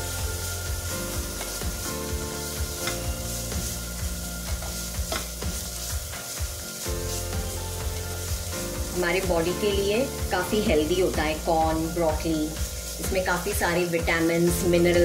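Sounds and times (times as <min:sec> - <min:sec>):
corn sizzling in oil: 0:00.0 - 0:15.0
soft background music: 0:00.0 - 0:15.0
spatula scraping a pan: 0:01.1 - 0:09.0.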